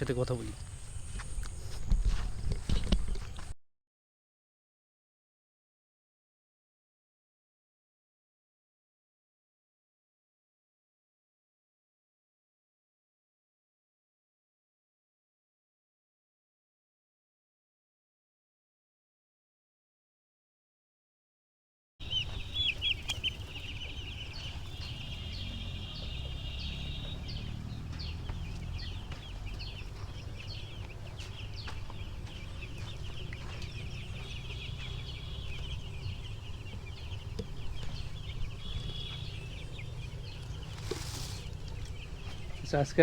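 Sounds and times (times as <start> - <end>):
chicks peeping: 0.0 - 3.6, 22.0 - 43.0.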